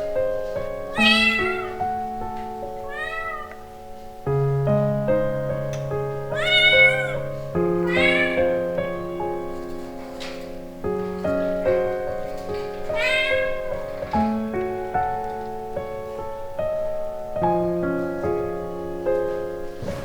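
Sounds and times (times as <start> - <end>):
background piano music: 0.0 - 20.0
kitten meowing: 0.9 - 1.9, 2.8 - 3.7, 6.3 - 8.7, 12.9 - 13.7.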